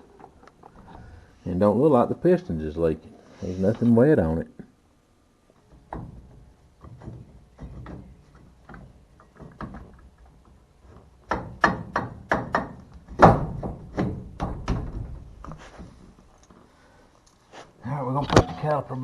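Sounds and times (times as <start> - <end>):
louder knocks: 11.3 - 15.2.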